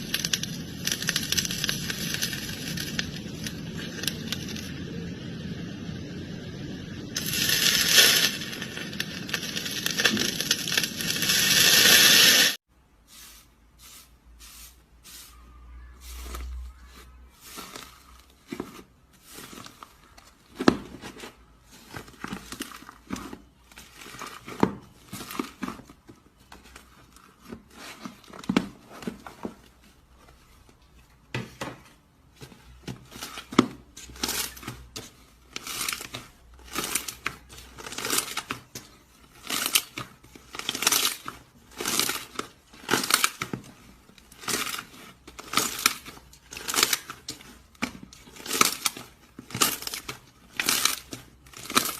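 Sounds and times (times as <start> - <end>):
slime crackling and tearing: 0.0 - 4.7, 7.2 - 12.6, 16.1 - 28.4, 33.0 - 51.9.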